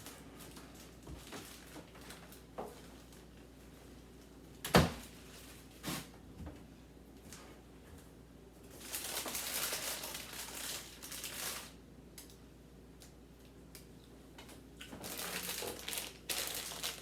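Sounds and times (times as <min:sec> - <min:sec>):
plastic packaging crinkling: 0:00.0 - 0:03.3, 0:08.7 - 0:11.8, 0:14.8 - 0:17.0.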